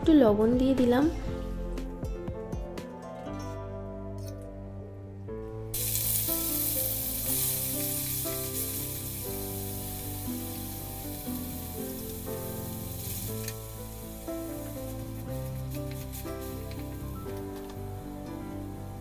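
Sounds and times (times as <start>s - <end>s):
background music: 0.0s - 19.0s
food sizzling in hot oil: 5.7s - 19.0s.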